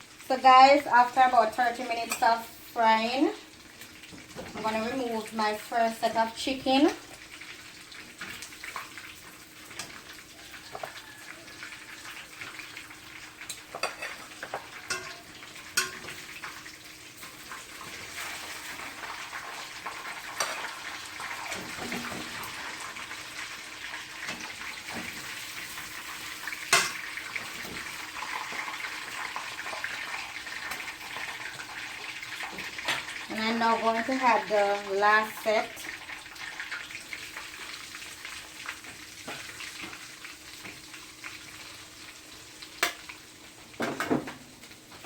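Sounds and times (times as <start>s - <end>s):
chicken sizzling in hot oil: 0.0s - 45.0s
utensil clinking against pot: 14.9s - 15.2s.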